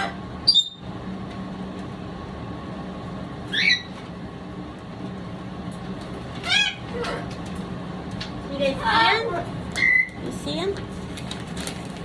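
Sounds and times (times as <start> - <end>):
parrot squawking: 0.0 - 0.8, 3.5 - 4.0, 6.4 - 7.3, 9.8 - 10.2.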